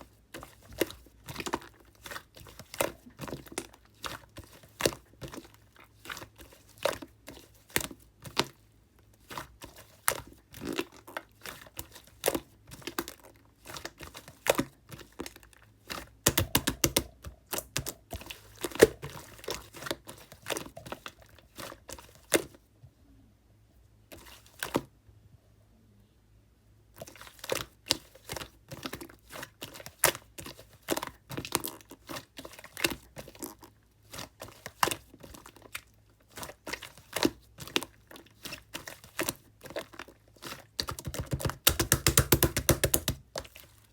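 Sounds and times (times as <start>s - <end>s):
sticky slime clicks and pops: 40.8s - 43.2s.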